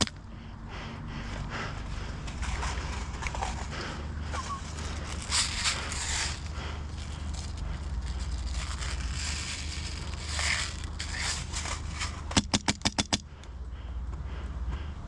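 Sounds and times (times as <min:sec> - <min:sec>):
gear scraping and rustling: 0:01.2 - 0:12.5.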